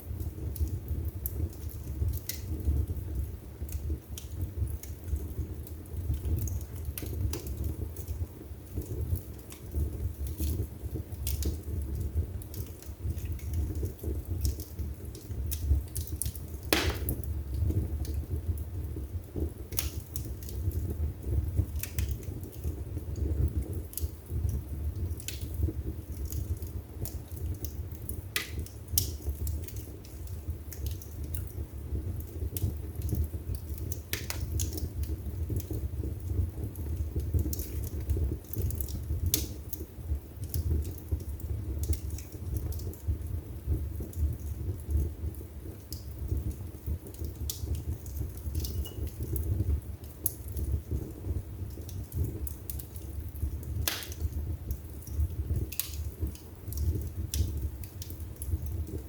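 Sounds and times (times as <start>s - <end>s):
low rumble of flame: 0.0s - 59.0s
wood fire crackling: 0.0s - 59.0s
loud fire pop: 16.7s - 17.3s, 53.9s - 54.2s.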